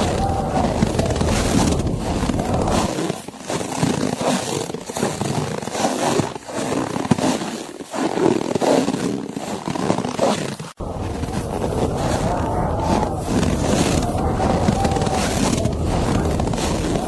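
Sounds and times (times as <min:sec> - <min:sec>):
blizzard wind rushing: 0:00.0 - 0:02.9, 0:10.8 - 0:17.0.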